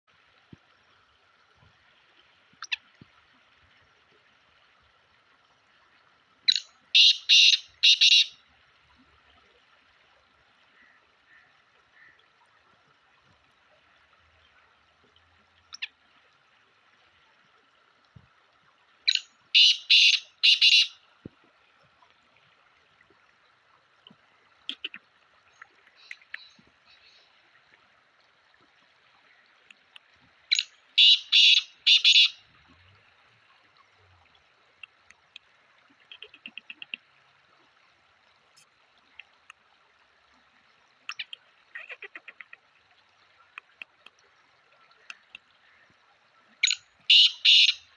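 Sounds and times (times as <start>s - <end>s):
francolin calling: 6.5s - 8.4s, 19.1s - 21.0s, 30.5s - 32.4s, 46.6s - 47.9s
faint clicks: 24.0s - 27.0s, 29.5s - 30.7s, 34.8s - 37.1s, 43.4s - 44.3s, 44.9s - 46.0s.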